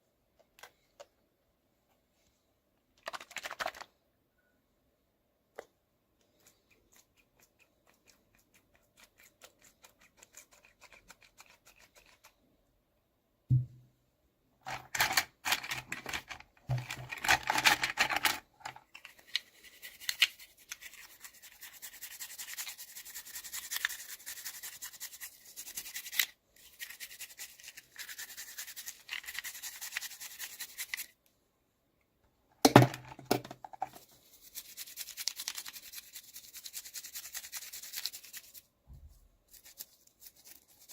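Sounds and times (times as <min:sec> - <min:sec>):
low knock: 0:13.5 - 0:13.8.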